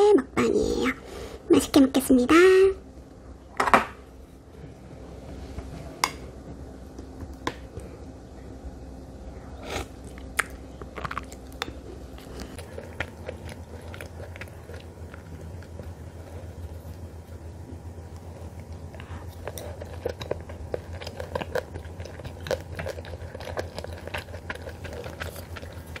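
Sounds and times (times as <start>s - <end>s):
faint steady hum: 0.0s - 26.0s
person biting and chewing food: 9.6s - 17.2s, 18.2s - 26.0s.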